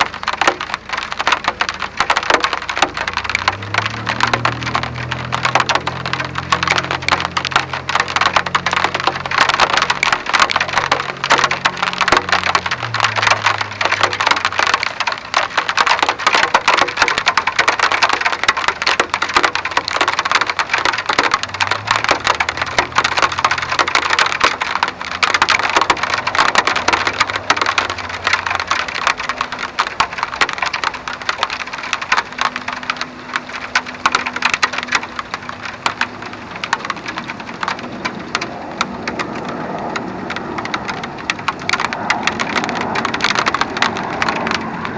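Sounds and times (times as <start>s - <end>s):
rain pattering: 0.0s - 44.9s.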